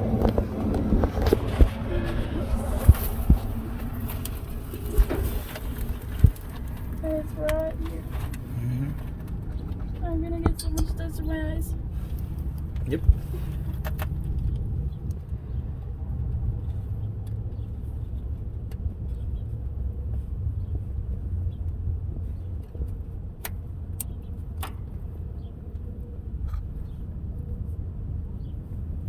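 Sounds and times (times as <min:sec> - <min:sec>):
steady low rumble: 0:00.0 - 0:18.5.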